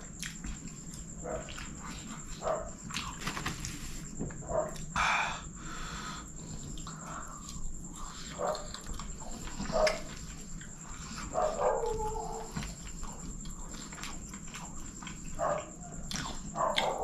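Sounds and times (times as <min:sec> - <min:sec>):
man chewing with mouth smacks: 0:00.0 - 0:03.8, 0:06.4 - 0:11.4, 0:12.3 - 0:17.0.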